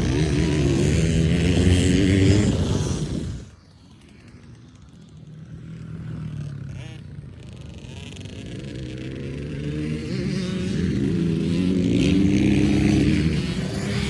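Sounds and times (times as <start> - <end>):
dirt bike engine revving: 0.0 - 3.5, 6.7 - 14.0.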